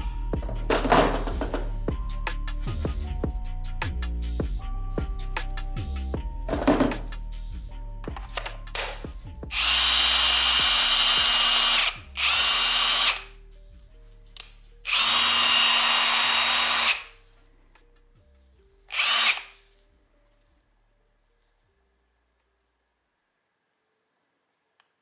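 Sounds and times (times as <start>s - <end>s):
impact driver whining: 8.3s - 13.3s, 14.9s - 17.1s, 18.9s - 19.5s.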